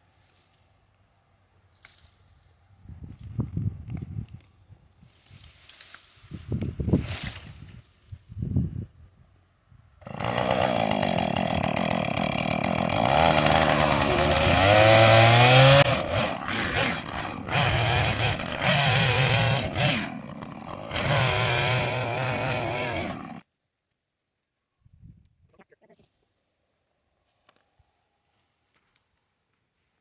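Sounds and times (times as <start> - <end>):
chainsaw cutting wood: 10.0 - 23.4.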